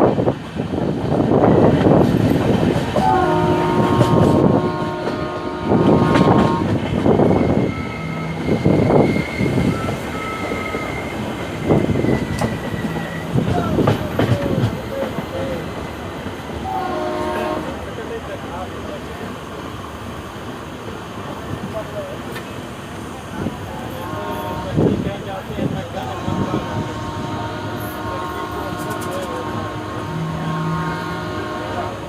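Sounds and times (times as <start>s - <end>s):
train wheels clattering over rail joints: 1.0s - 16.6s
train horn: 3.0s - 8.2s, 16.6s - 17.8s, 23.9s - 25.0s, 26.0s - 32.0s
high wheel squeal: 7.2s - 13.7s.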